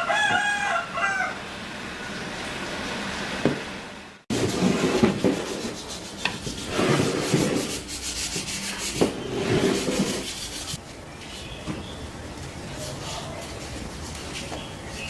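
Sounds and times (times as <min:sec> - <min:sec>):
hand sanding wood: 0:04.3 - 0:10.8, 0:12.7 - 0:15.0.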